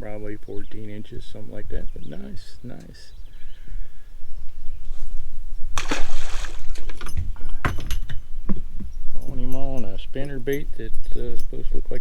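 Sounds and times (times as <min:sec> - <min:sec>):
water splashing against boat: 0:05.8 - 0:08.8
knocks: 0:06.9 - 0:09.0.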